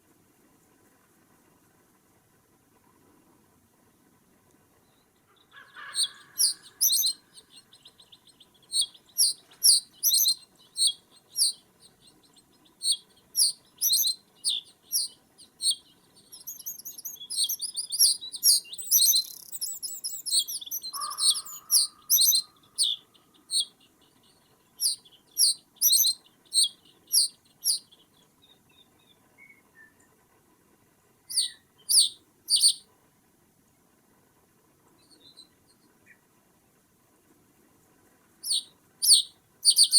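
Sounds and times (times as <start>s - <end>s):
small birds chirping: 4.8s - 30.2s, 31.3s - 32.8s, 35.0s - 36.3s, 38.4s - 39.9s.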